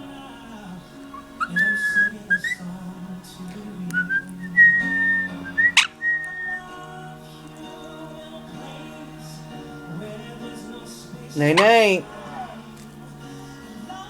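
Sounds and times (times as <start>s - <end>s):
background music: 0.0s - 14.0s
parrot chirp: 1.2s - 2.6s
parrot whistling: 1.2s - 2.7s, 3.9s - 6.7s.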